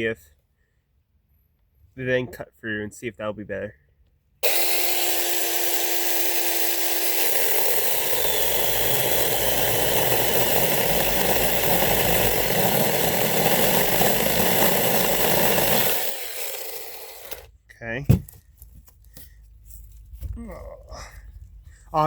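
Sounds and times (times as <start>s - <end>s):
mini chainsaw cutting wood: 4.4s - 17.5s.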